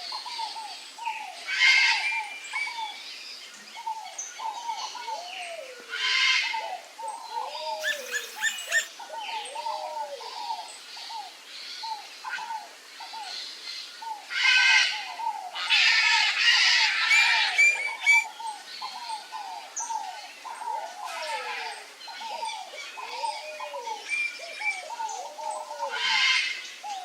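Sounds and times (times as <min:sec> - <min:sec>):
birds calling low notes: 0:07.7 - 0:08.9
harsh bird calls: 0:07.7 - 0:09.1, 0:16.8 - 0:18.4.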